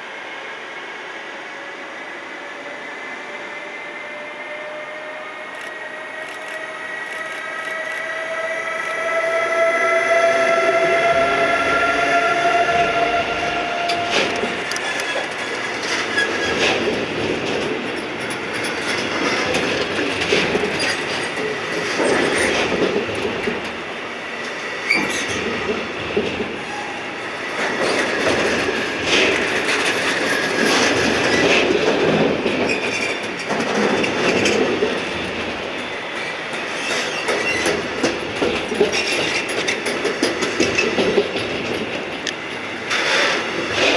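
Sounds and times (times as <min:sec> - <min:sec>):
rush of passing train cars: 0:00.0 - 0:43.9
train whine: 0:00.0 - 0:43.9
wheels clattering over rail joints: 0:27.6 - 0:43.9.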